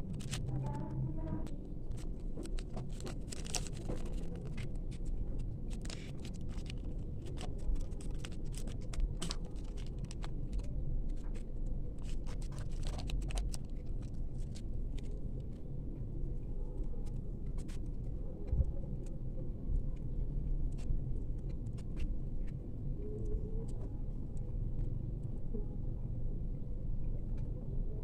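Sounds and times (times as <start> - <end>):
packaging crinkling: 0.0 - 0.5, 1.9 - 4.6, 5.7 - 10.6, 12.0 - 15.6
low rumble: 0.0 - 28.0.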